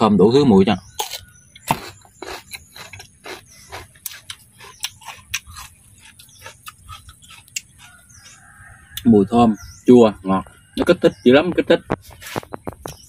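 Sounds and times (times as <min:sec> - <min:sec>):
crunchy chewing: 0:00.9 - 0:09.1.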